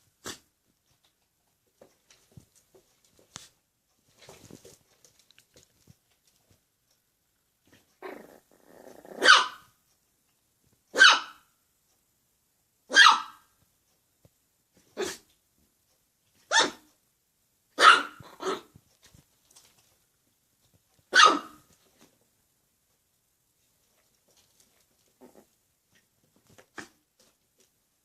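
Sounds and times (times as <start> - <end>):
dog growling: 8.0 - 9.3, 25.2 - 25.6
dog barking: 9.1 - 9.7, 10.9 - 11.5, 12.9 - 13.5, 15.0 - 15.2, 16.5 - 16.9, 17.8 - 18.7, 21.1 - 21.6.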